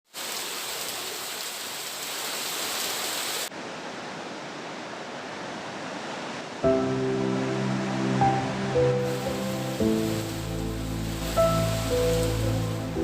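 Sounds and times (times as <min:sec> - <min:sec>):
falling water rushing: 0:00.1 - 0:13.0
music: 0:06.6 - 0:13.0.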